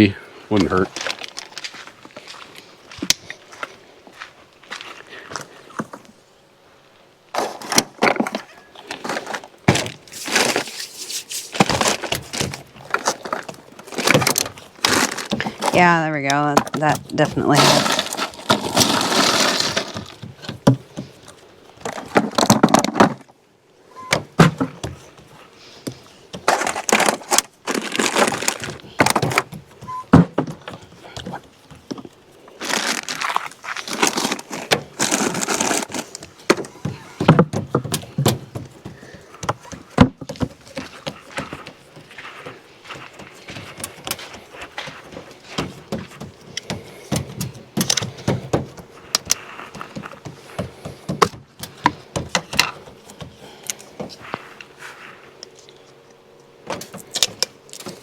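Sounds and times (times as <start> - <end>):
rustling: 7.3 - 23.3, 23.9 - 51.0.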